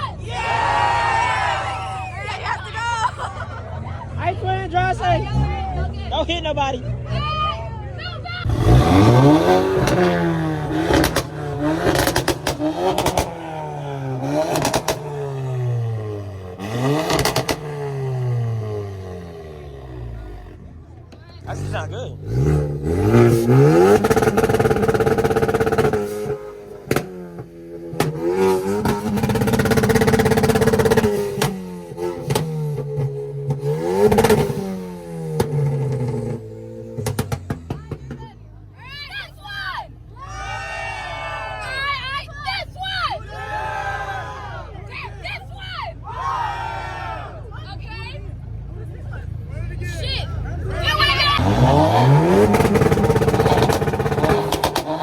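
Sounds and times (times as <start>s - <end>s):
exhaust crackles: 2.0s - 38.8s, 47.3s - 55.0s
car engine revving: 3.8s - 38.6s, 46.9s - 55.0s
engine sharp cracks: 8.4s - 13.6s, 16.7s - 17.8s, 35.3s - 38.2s, 51.4s - 55.0s.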